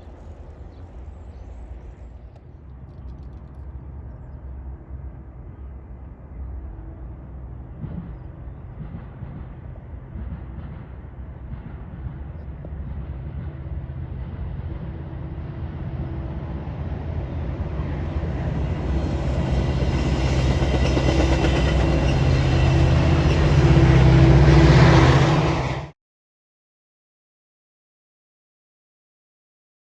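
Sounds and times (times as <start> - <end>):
train rumble and hiss: 0.0 - 25.9
train engine drone: 0.0 - 26.0.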